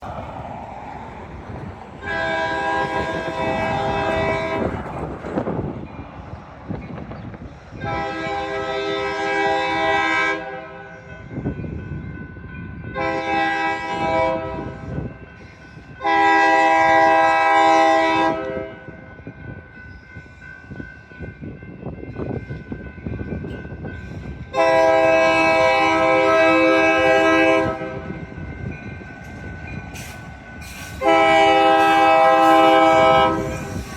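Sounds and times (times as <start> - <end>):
passing train rumble: 0.0 - 33.9
locomotive air horn blasts: 2.0 - 4.8, 7.8 - 10.9, 12.9 - 15.0, 16.0 - 18.9, 24.5 - 28.2, 30.9 - 33.8.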